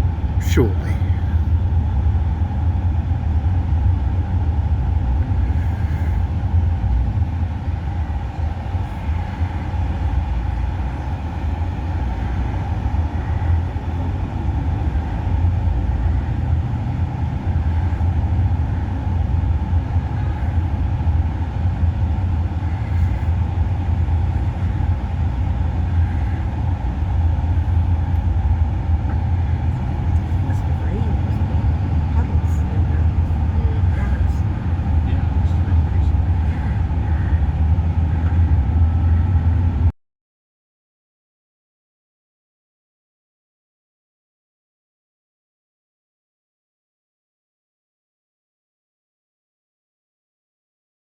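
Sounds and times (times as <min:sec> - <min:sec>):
vehicle engine and road noise: 0:00.0 - 0:39.9.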